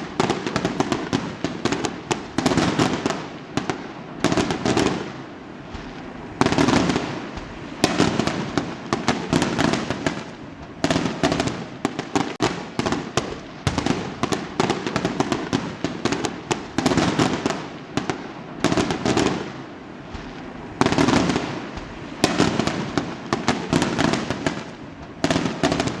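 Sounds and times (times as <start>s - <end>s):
fireworks bangs: 0.0s - 26.0s
fireworks crackling: 0.0s - 26.0s.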